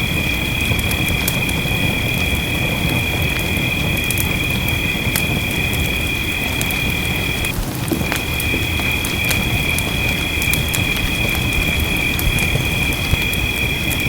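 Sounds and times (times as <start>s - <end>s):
rain rushing: 0.0s - 14.0s
wood fire crackling and popping: 0.0s - 14.0s.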